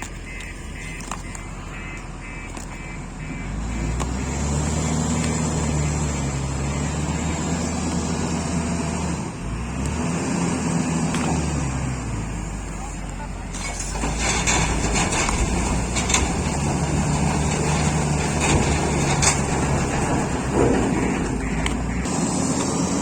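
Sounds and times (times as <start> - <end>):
rapid pulsing beep: 0.2 - 3.6
heavy diesel engine revving: 0.7 - 23.0.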